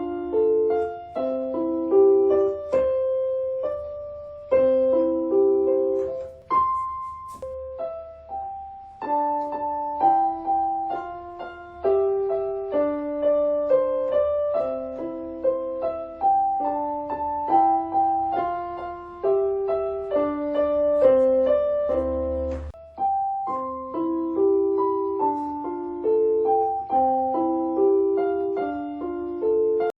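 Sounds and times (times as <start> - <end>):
gentle piano melody: 0.0 - 30.0.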